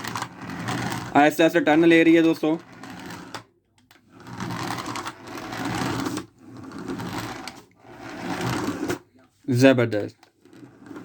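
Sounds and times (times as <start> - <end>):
toy car electric motor whirring: 0.0 - 1.2, 2.6 - 3.5, 4.1 - 9.0.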